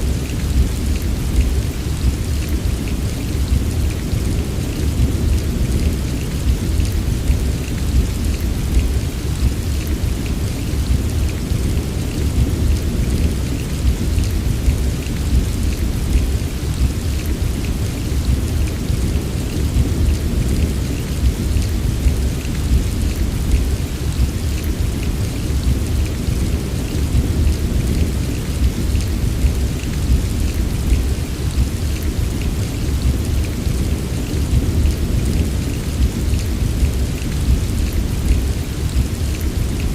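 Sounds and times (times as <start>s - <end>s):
continuous low rumble: 0.0s - 39.9s
heavy rain patter: 0.0s - 39.9s.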